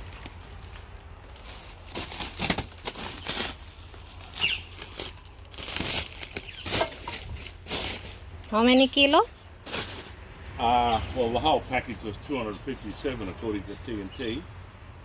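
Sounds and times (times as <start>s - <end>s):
packaging crinkling and tearing: 0.0s - 8.2s.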